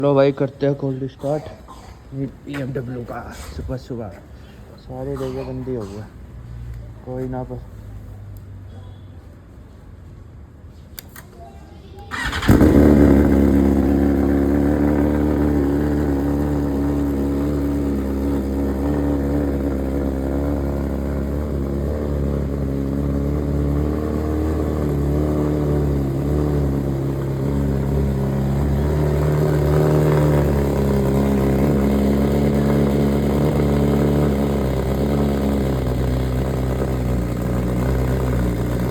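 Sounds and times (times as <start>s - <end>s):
motorcycle engine starting and idling: 12.0s - 38.9s.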